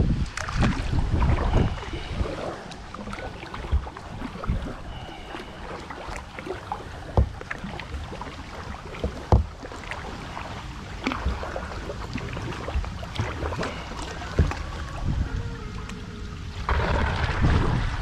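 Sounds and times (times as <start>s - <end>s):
paddle splashes and drips: 0.2s - 18.0s
low rumble: 11.7s - 18.0s.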